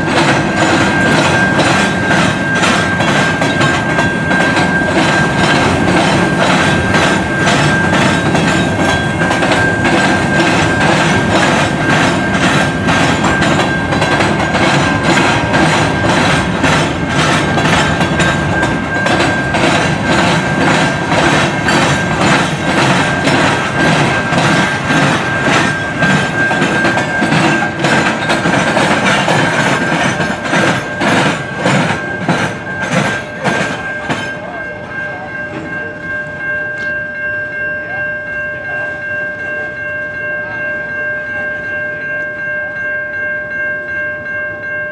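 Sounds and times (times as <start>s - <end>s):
train wheels clicking over rail joints: 0.0s - 34.4s
high wheel squeal: 0.0s - 34.6s
train rumble: 0.0s - 36.5s.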